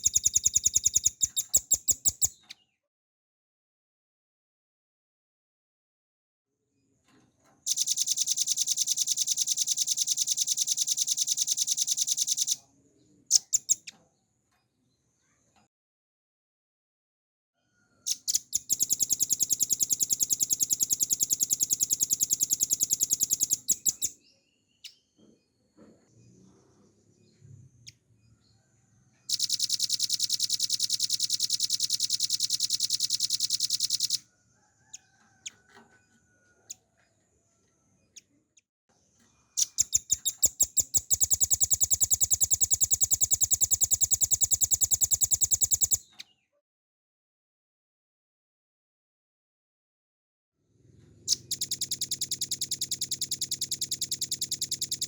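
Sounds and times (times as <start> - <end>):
bird singing rapid trills: 0.0 - 2.5, 7.7 - 12.6, 13.3 - 14.0, 18.1 - 25.1, 29.3 - 34.2, 39.5 - 46.3, 51.2 - 55.0.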